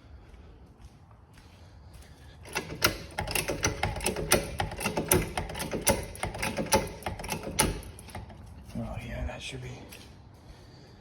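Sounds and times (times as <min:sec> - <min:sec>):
car jack clicking and clanking: 0:02.4 - 0:08.7.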